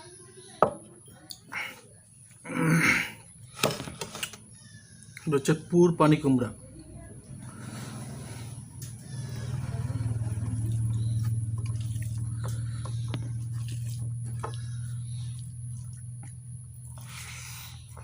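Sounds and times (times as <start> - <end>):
steady low hum: 1.5 - 18.0
wet chewing sounds: 7.4 - 18.0.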